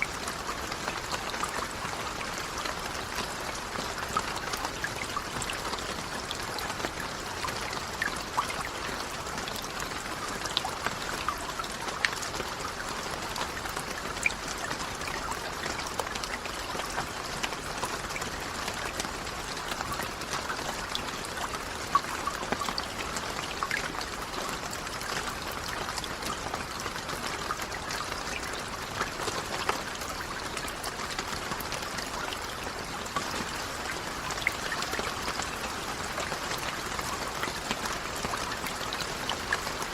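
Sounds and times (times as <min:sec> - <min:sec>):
rain falling: 0:00.0 - 0:39.9
trickling running water: 0:00.0 - 0:39.9.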